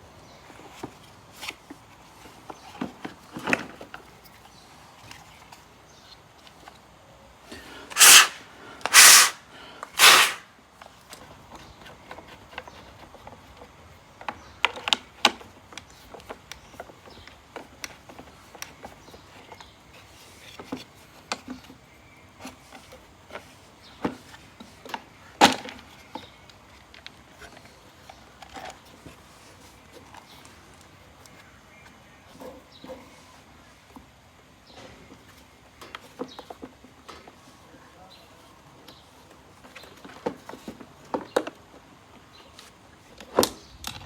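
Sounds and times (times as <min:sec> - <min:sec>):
loud noisy bursts: 0:08.0 - 0:09.4, 0:10.0 - 0:10.4.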